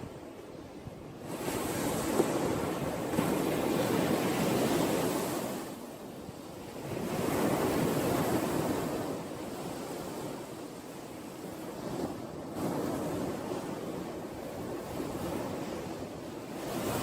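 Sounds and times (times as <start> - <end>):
sea waves washing ashore: 0.0 - 17.0.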